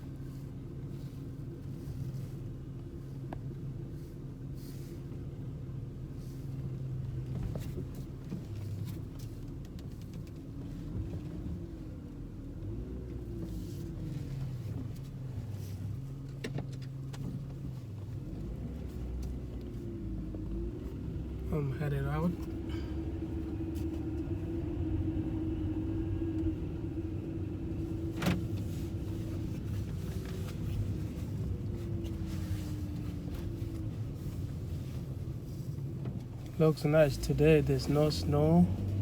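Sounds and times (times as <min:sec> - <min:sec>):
car engine humming: 0:09.9 - 0:39.0.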